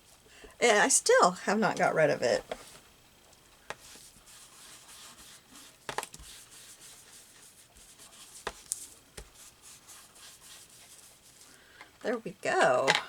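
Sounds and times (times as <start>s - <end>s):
hands rustling paper: 3.6s - 11.6s.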